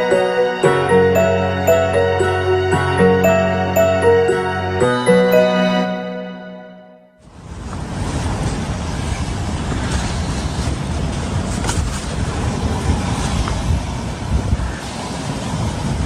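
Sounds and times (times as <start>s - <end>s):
wind buffeting microphone: 7.3s - 16.0s
waves washing on beach: 7.6s - 16.0s.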